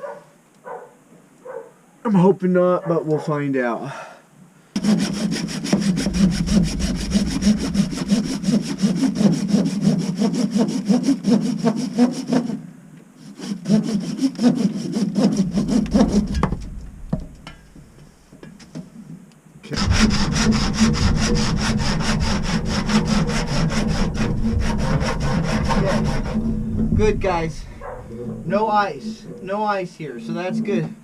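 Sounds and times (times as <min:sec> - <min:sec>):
saw cutting plastic pipe: 0:04.8 - 0:12.6, 0:13.2 - 0:17.6, 0:19.7 - 0:29.5.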